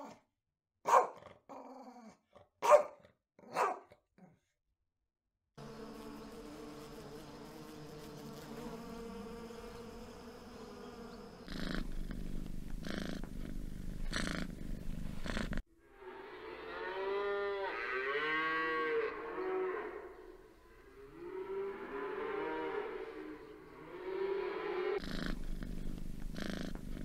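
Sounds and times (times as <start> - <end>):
bee buzzing: 5.6 - 13.3, 18.6 - 27.0
cat purring: 11.4 - 15.6, 25.0 - 27.0
cattle mooing: 16.0 - 25.4.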